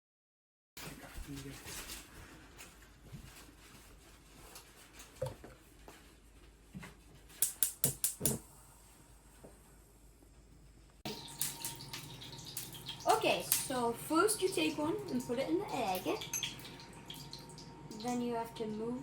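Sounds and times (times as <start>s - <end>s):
sharp clicks and taps: 7.4s - 8.4s.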